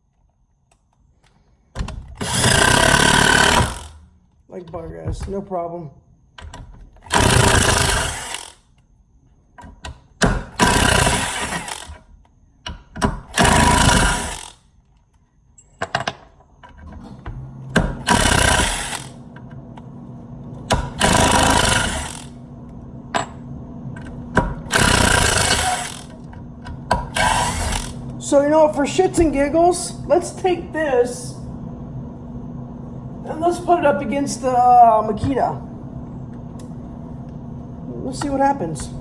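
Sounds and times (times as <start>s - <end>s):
steady low hum: 0.0s - 39.0s
impact driver hammering: 2.2s - 4.0s, 20.7s - 22.3s, 24.4s - 26.2s.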